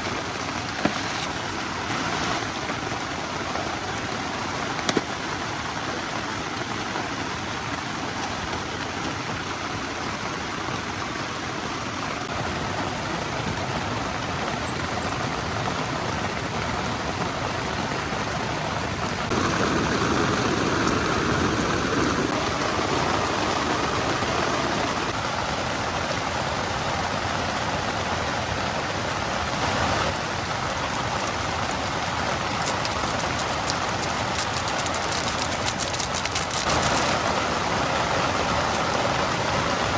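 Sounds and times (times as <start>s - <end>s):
heavy rain falling: 0.0s - 39.9s
rushing waterfall and stream: 0.0s - 39.9s.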